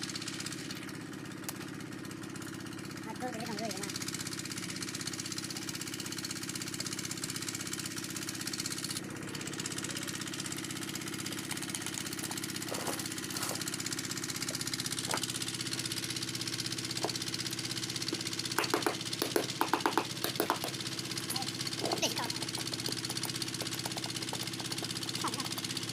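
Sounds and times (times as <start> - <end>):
machine humming: 11.0 - 25.9.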